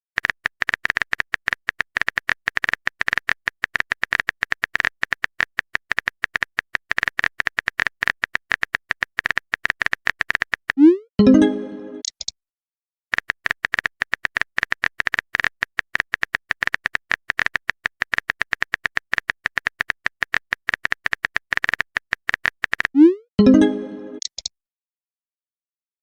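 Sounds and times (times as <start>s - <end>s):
phone keyboard typing clicks: 0.2s - 10.9s, 13.1s - 23.0s, 24.2s - 24.5s
message chime: 10.8s - 12.1s, 23.1s - 24.2s.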